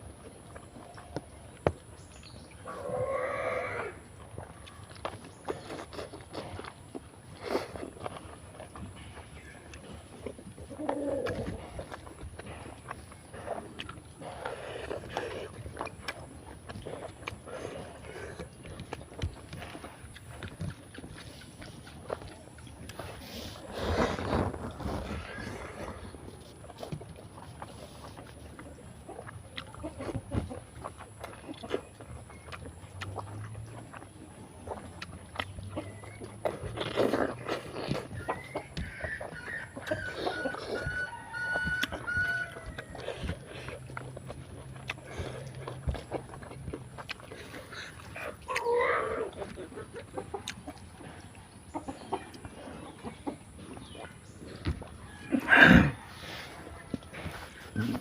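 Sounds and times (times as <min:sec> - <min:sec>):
person chewing and lip-smacking: 0:04.2 - 0:58.0
chicken clucking cry: 0:10.4 - 0:11.7, 0:37.8 - 0:43.7, 0:47.4 - 0:54.0.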